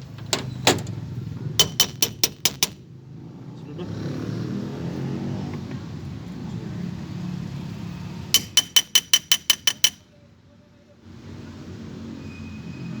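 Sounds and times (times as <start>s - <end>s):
hammer tapping metal: 1.6s - 2.8s, 8.4s - 10.1s.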